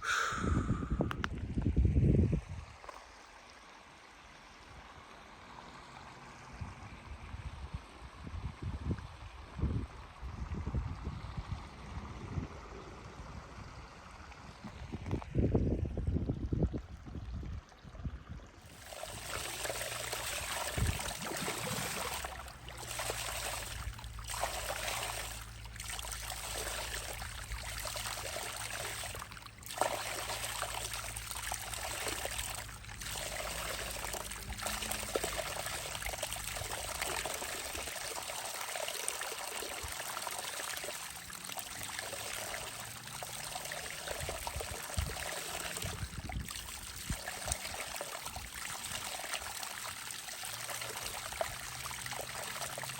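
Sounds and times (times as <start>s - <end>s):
low steady hum: 3.5s - 52.9s
water trickling: 13.0s - 52.9s.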